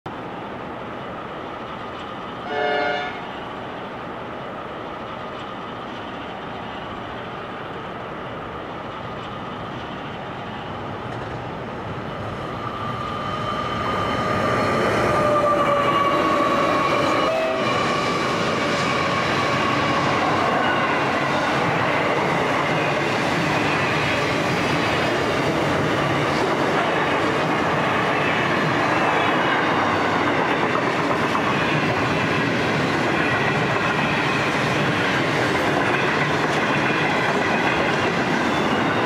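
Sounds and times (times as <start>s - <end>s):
freight trains running: 0.1s - 39.0s
diesel locomotive horn blast: 2.4s - 3.3s, 17.2s - 17.8s.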